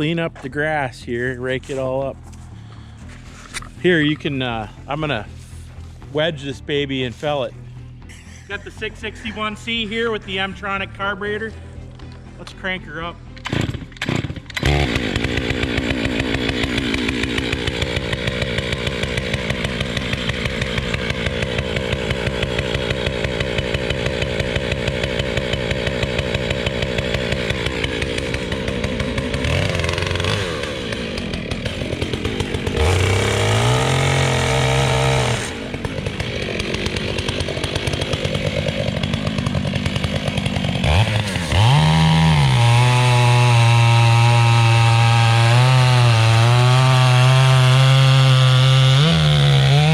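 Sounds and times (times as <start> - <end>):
chainsaw idling and revving: 12.8 - 49.9.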